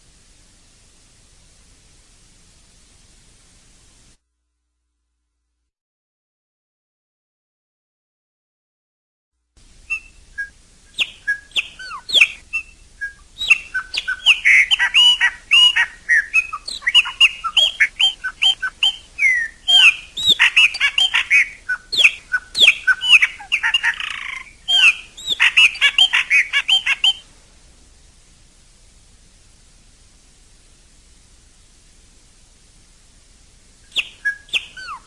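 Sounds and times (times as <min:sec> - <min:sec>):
blackbird singing: 0:09.8 - 0:27.3, 0:33.8 - 0:35.0.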